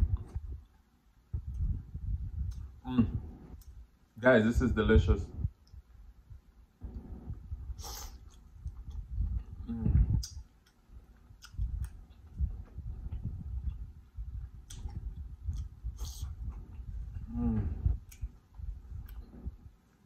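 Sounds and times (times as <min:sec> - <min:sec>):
chewing with wet lip smacks: 0:02.4 - 0:02.8, 0:08.0 - 0:17.3, 0:18.0 - 0:19.5.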